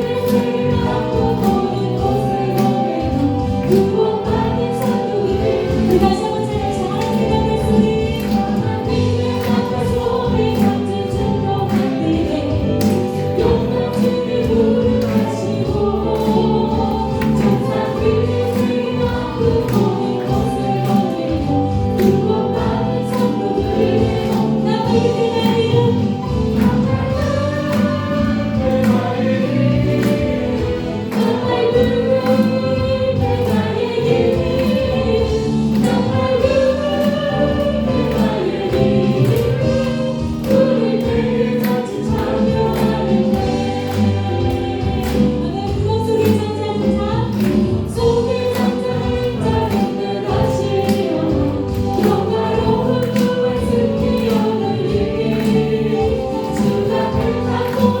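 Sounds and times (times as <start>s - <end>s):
group singing a praise song: 0.0s - 58.0s
instrumental accompaniment: 0.0s - 58.0s.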